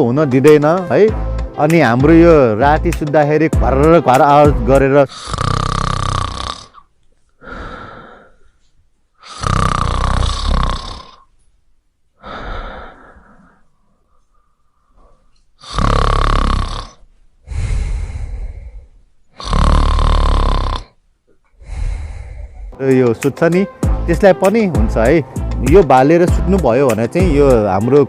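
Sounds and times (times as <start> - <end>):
person snoring: 5.0 - 8.5, 9.2 - 11.3, 12.2 - 13.7, 15.6 - 21.0, 21.6 - 22.8
soft breath out: 7.2 - 9.3, 12.2 - 15.5, 17.4 - 19.0, 21.5 - 22.8.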